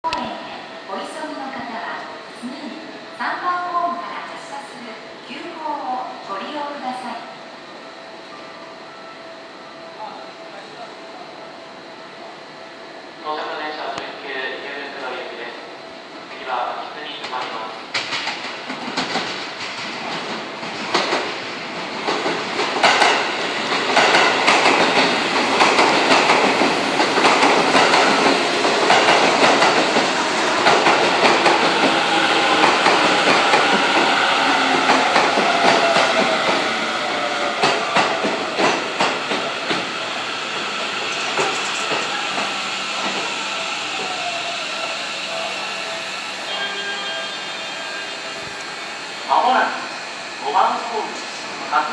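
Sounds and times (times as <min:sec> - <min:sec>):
train wheels clicking over joints: 0:17.9 - 0:44.2
train motor whine: 0:24.3 - 0:50.4.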